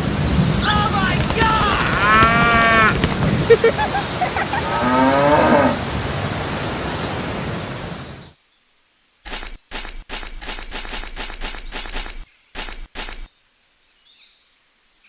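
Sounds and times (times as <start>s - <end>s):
rain-like hiss: 0.0s - 15.0s
cow mooing: 1.9s - 3.0s, 4.5s - 5.8s
quick scratchy strokes: 9.3s - 13.3s.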